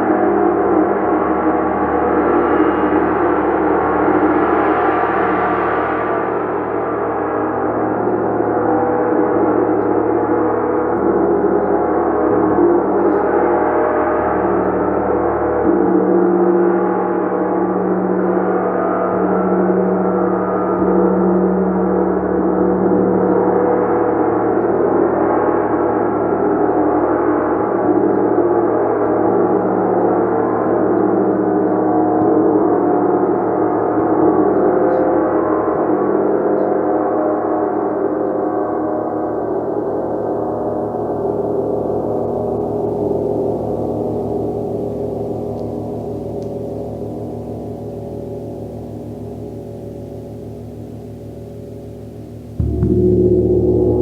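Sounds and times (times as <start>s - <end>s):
gong shimmering: 39.8s - 54.0s.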